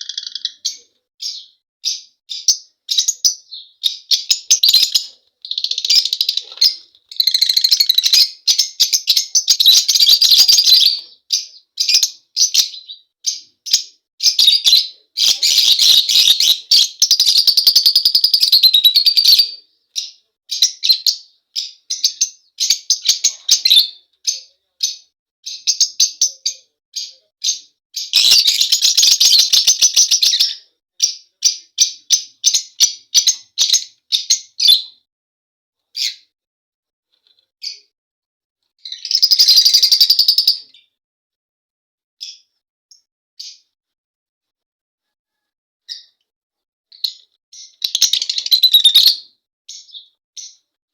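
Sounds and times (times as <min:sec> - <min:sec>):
lovebirds chirping: 0:00.0 - 0:34.9, 0:47.0 - 0:50.6.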